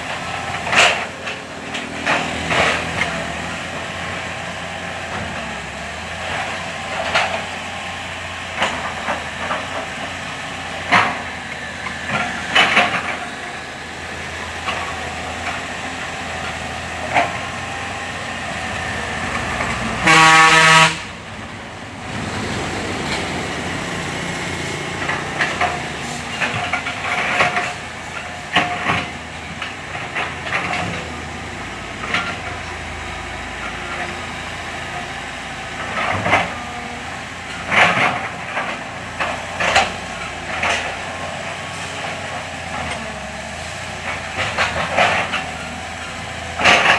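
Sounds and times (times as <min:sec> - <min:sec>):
diesel machinery running: 0:00.0 - 0:46.9
vehicle horn: 0:19.9 - 0:21.2
knocks and clanks: 0:21.0 - 0:32.8.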